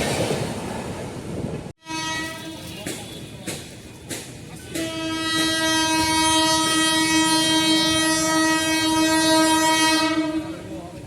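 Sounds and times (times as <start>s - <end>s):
train rumbling: 0.0s - 11.0s
locomotive horn blast: 1.8s - 3.4s, 4.7s - 10.7s.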